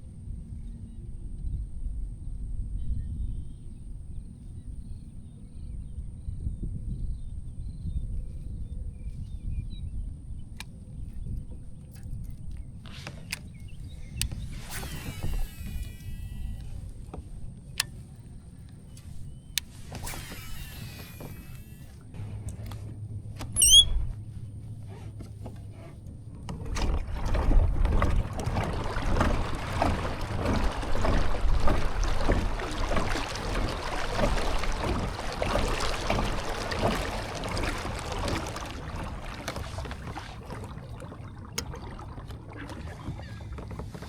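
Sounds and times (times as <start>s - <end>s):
water splashing against kayak hull: 9.2s - 44.0s.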